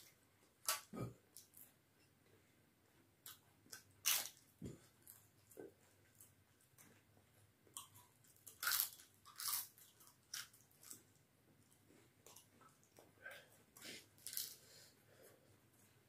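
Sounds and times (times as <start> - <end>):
person crunching crisp wafer: 3.3 - 5.3, 7.8 - 11.1, 14.1 - 14.6.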